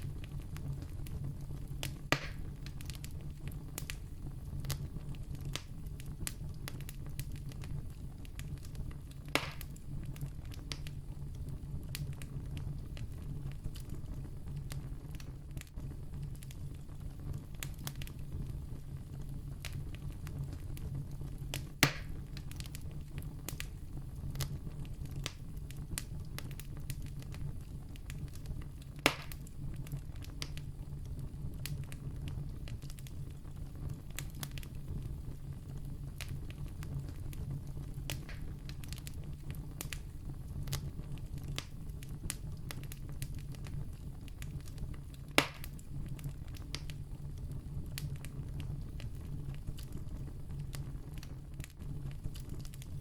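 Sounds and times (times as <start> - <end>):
campfire crackling: 0.0 - 53.0
sharp loud fire pops: 2.1 - 2.5, 9.3 - 9.7, 21.8 - 22.2, 29.0 - 29.4, 45.4 - 45.7.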